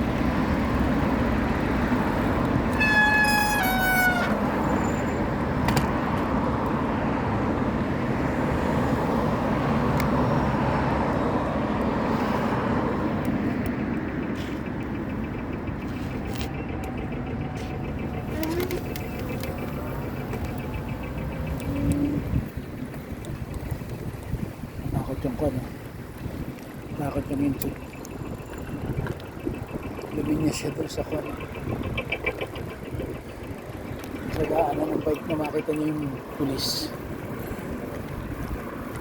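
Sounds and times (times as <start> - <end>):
passing vehicles rushing: 0.0 - 39.0
short squeals: 2.7 - 5.2, 18.1 - 19.6.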